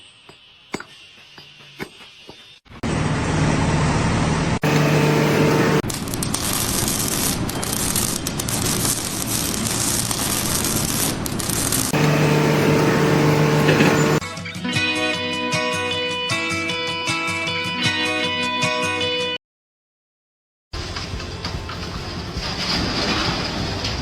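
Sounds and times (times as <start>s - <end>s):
machinery humming: 2.8s - 14.2s
harsh crackling: 4.6s - 14.2s.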